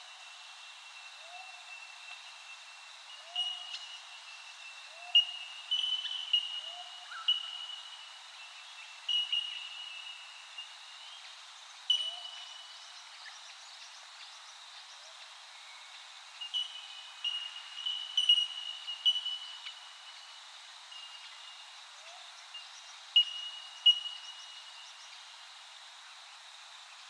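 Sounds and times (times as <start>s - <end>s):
birds ringing ping-like calls: 16.4s - 19.9s, 23.2s - 24.6s.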